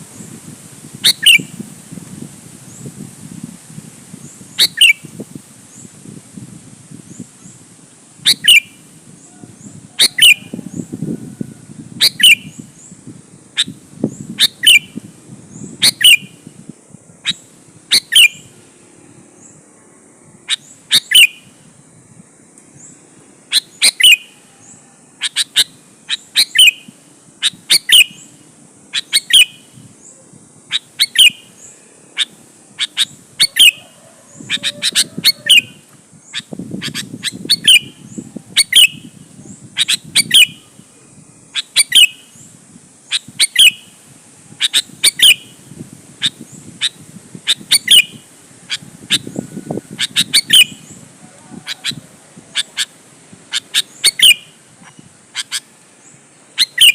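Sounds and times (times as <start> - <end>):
bird calling sharp notes: 23.5 - 24.5, 25.2 - 28.3, 28.9 - 29.8, 30.7 - 39.2, 41.5 - 42.3, 43.1 - 44.0, 44.6 - 45.6, 46.2 - 51.0, 51.6 - 55.8, 56.6 - 56.9.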